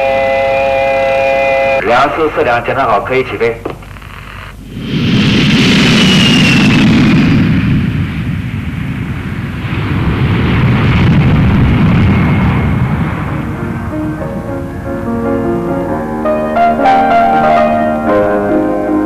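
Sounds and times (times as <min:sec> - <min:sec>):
jet engines roaring: 0:00.0 - 0:19.0
piano music: 0:12.8 - 0:19.0.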